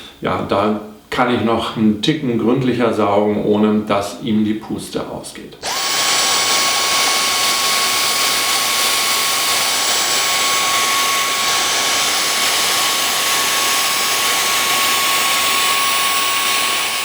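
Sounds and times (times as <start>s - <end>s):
handheld vacuum cleaner whine: 5.6s - 17.0s.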